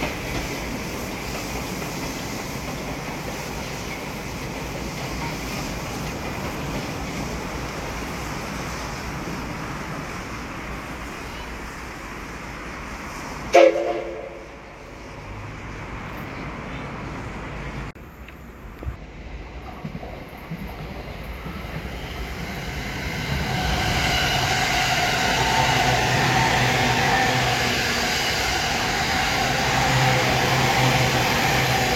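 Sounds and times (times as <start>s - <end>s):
train rumbling: 0.0s - 31.9s
train horn blast: 13.5s - 14.6s.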